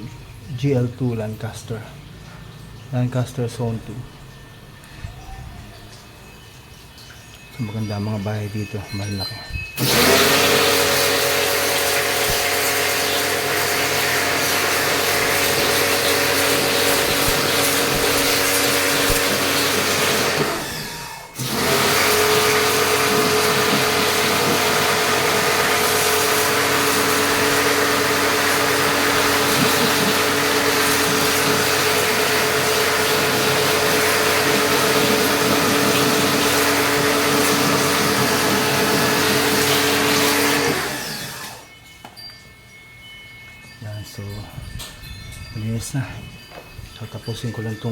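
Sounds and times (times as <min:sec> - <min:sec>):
electric motor tool whining: 0:09.8 - 0:41.7.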